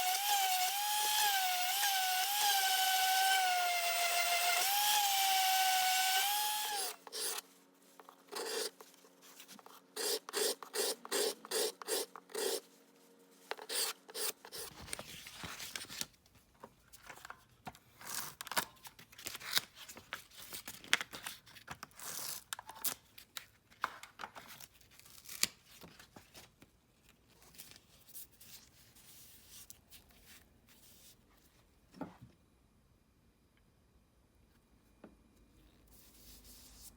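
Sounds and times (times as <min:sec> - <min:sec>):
power tool winding down: 0:00.0 - 0:07.4.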